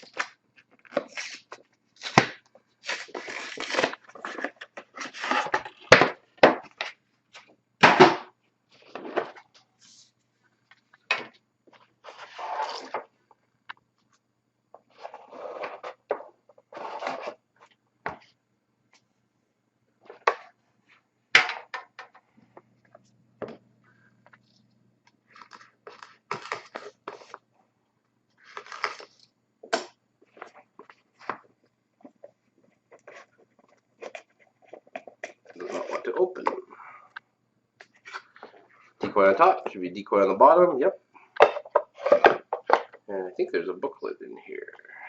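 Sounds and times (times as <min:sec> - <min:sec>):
plastic wrap tearing and crinkling: 0:00.0 - 0:05.8, 0:25.2 - 0:27.4, 0:28.4 - 0:29.3.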